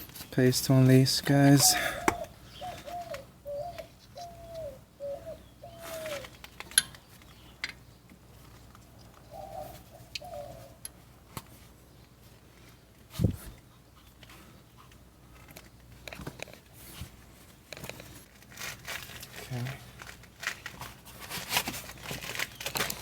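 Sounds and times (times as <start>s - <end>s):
dove cooing: 1.3s - 6.5s, 8.9s - 10.8s.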